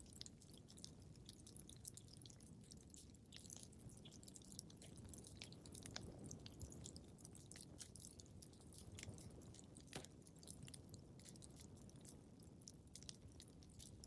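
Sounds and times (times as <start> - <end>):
wood fire crackling: 4.7 - 13.3.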